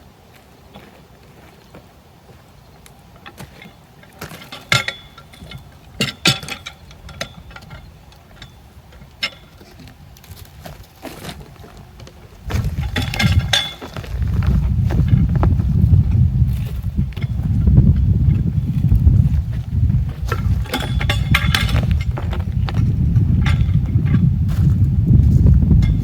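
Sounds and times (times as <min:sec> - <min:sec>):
metal clanks and knocks: 0:03.2 - 0:09.9, 0:12.5 - 0:24.8, 0:25.7 - 0:26.0
heavy low rumble: 0:12.3 - 0:26.0.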